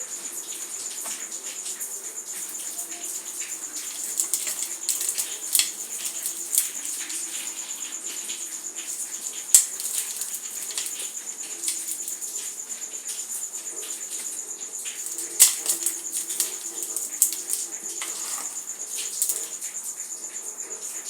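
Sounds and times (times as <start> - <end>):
dry material crackling: 2.4 - 7.9, 8.8 - 12.7, 13.8 - 19.6.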